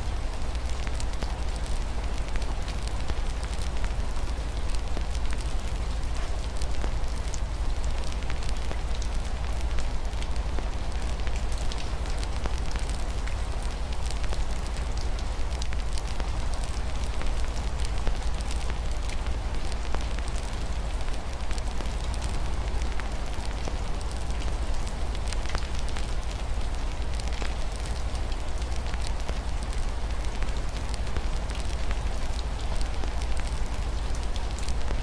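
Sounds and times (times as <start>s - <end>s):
rain falling: 0.0s - 35.0s
wood fire crackling and popping: 11.0s - 35.0s.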